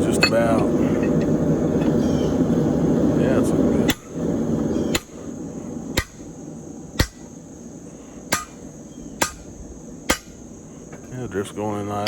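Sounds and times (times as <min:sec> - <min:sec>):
hammer striking steel drift: 0:06.0 - 0:06.3, 0:07.0 - 0:07.3, 0:08.3 - 0:08.6, 0:09.2 - 0:09.5, 0:10.1 - 0:10.4.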